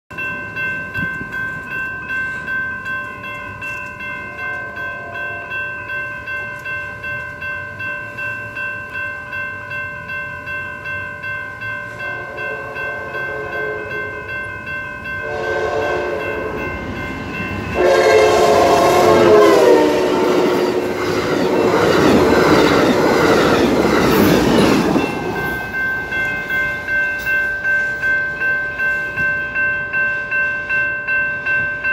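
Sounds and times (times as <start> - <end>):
railroad crossing bell ringing: 0.1 - 31.9
train rumbling and rattling: 11.8 - 30.6
train horn blasts: 12.0 - 14.3, 15.2 - 16.7, 17.7 - 21.0.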